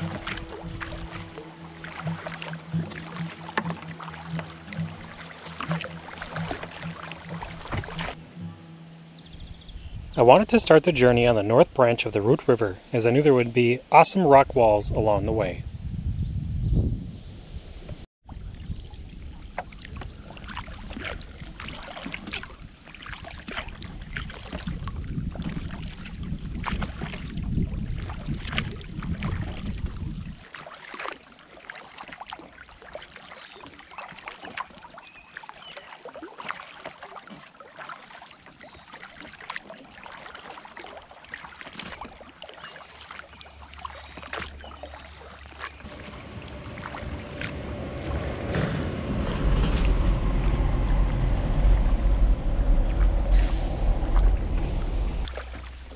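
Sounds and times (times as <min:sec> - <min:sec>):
paddle splashing and dripping: 0:00.0 - 0:09.2, 0:18.2 - 0:55.9
water lapping against hull: 0:00.0 - 0:16.0, 0:18.2 - 0:55.9
low rumble: 0:45.9 - 0:55.9.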